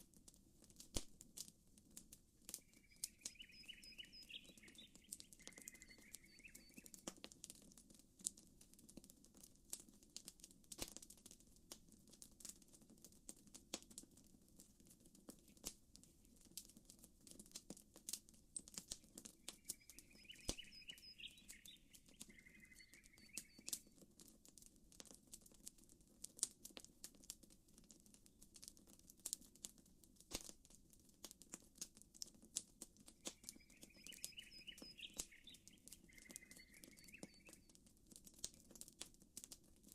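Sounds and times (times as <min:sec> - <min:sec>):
campfire crackling and popping: 0:00.0 - 0:39.9
bird chirping: 0:02.6 - 0:07.0, 0:19.0 - 0:23.9, 0:33.2 - 0:37.7.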